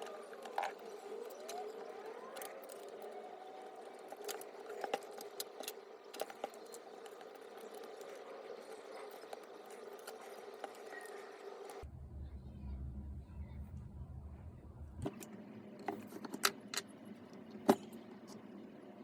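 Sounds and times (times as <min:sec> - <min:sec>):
tools and parts clicking: 0:00.0 - 0:11.8
steady background hum: 0:00.0 - 0:19.0.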